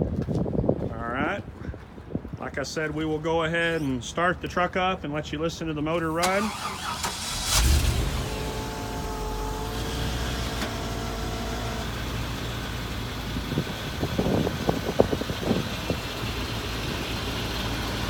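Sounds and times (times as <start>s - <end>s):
truck engine idling: 6.0s - 18.0s.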